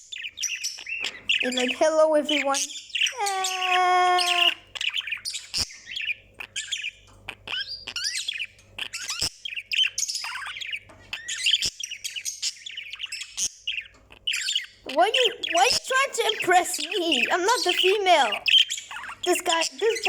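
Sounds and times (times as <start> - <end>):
budgie warbling and chattering: 14.9 - 20.0.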